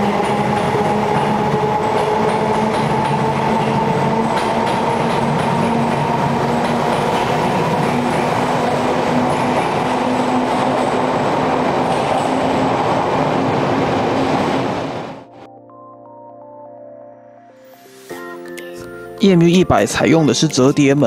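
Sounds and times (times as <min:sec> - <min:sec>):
electric train motor hum: 0:00.0 - 0:15.2
wheels rumbling on track: 0:00.0 - 0:15.3.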